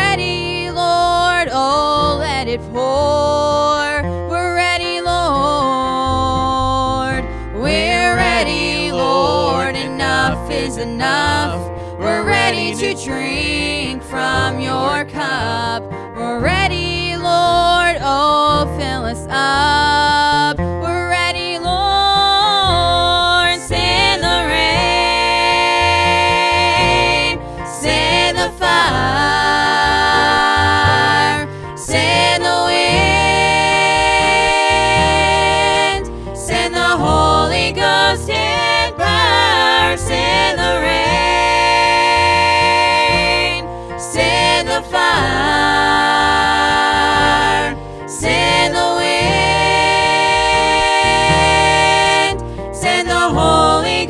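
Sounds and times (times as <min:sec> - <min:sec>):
gospel song: 0:00.0 - 0:54.0
sustained instrumental accompaniment: 0:23.2 - 0:54.0.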